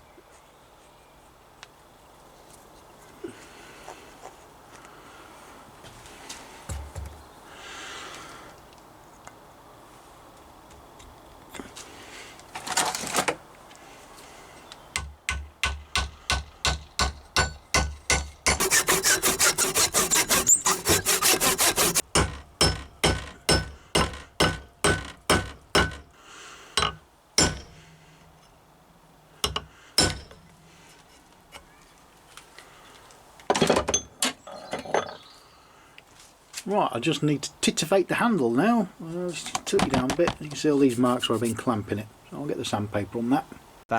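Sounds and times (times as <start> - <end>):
hand saw sawing wood: 18.5 - 22.3.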